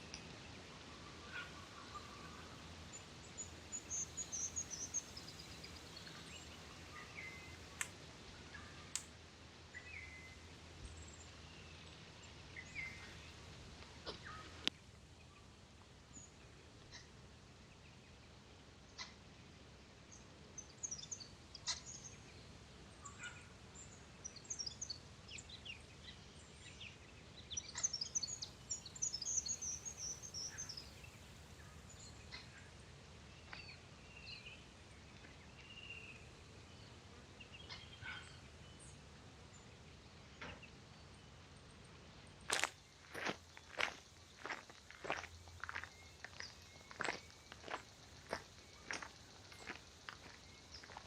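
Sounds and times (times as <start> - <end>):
birds chirping: 1.1 - 9.1, 27.5 - 32.8, 42.5 - 51.0
lower bird calls: 42.5 - 51.0.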